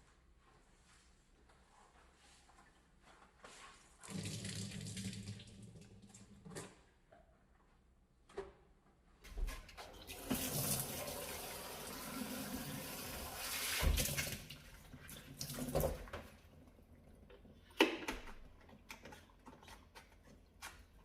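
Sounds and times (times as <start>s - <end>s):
water running from a tap: 4.0s - 6.0s, 10.0s - 16.0s.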